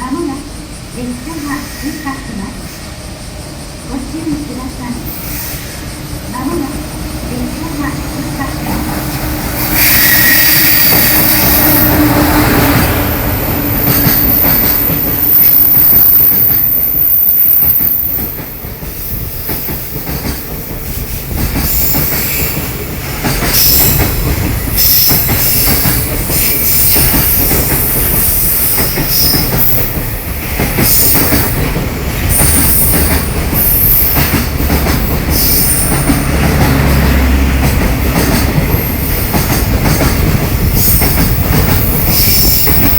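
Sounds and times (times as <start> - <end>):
freight train passing: 0.0 - 42.9
high wheel squeals: 8.4 - 18.4.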